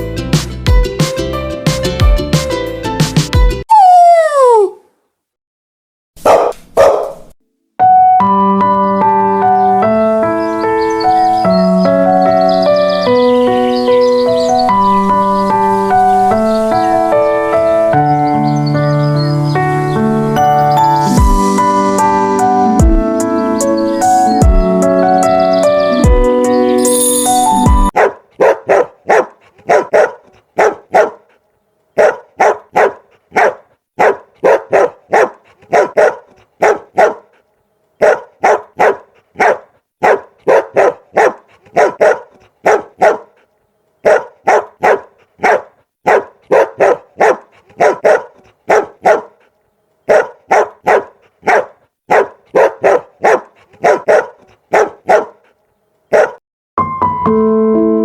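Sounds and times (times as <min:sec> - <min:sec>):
dog barking: 0:06.2 - 0:07.3, 0:27.9 - 0:31.4, 0:32.0 - 0:37.4, 0:38.0 - 0:56.4.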